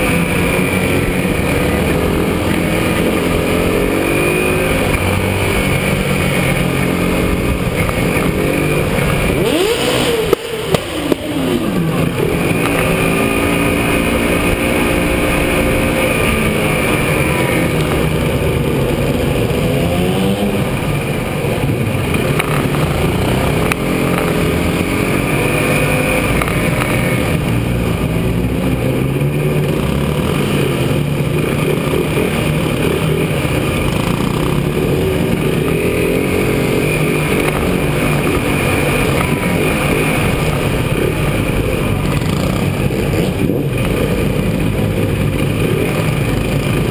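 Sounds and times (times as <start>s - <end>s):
motorcycle passing close: 0.0s - 46.9s
racing motorcycles revving: 0.0s - 46.9s.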